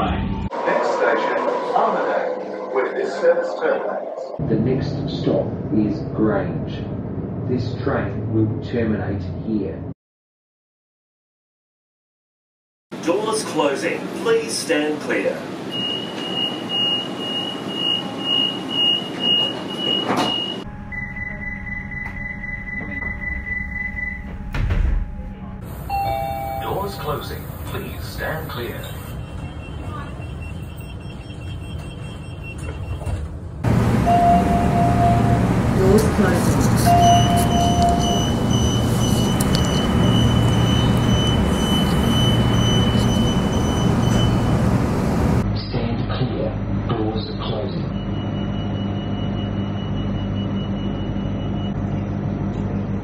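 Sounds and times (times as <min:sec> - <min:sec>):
steady high train warning tone: 0:00.5 - 0:04.4, 0:15.4 - 0:45.4, 0:46.4 - 0:52.4
high repeating door warning beep: 0:15.7 - 0:27.2, 0:28.6 - 0:35.6, 0:36.8 - 0:45.3.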